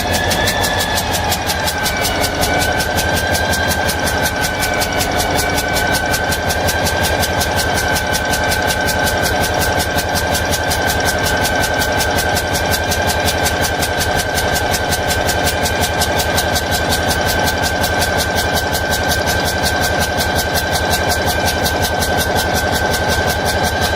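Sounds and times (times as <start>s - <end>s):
high whine: 0.0s - 17.2s
engine idling: 0.0s - 23.9s.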